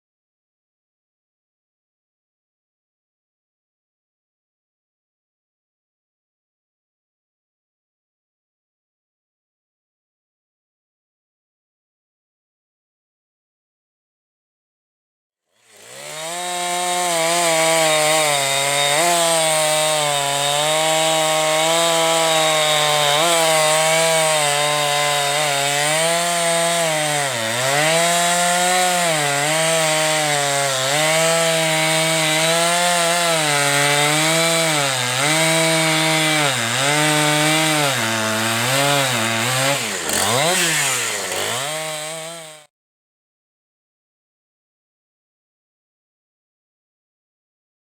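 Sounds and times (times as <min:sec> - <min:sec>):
chainsaw cutting wood: 0:15.5 - 0:42.7.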